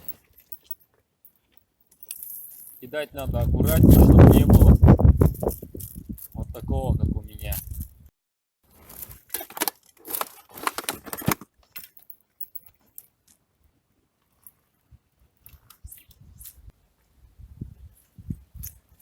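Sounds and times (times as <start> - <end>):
rustling and crinkling: 0.0 - 6.5, 8.7 - 17.1.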